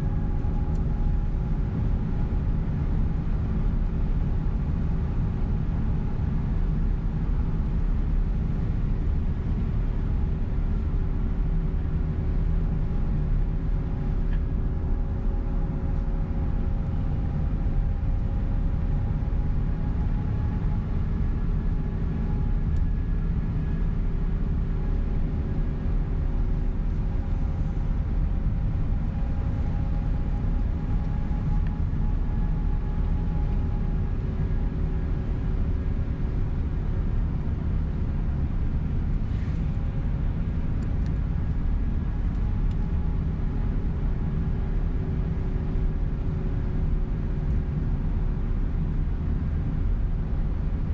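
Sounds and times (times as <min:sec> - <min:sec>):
bus engine and tyre rumble: 0:00.0 - 0:50.9
faint droning tones: 0:14.0 - 0:50.9.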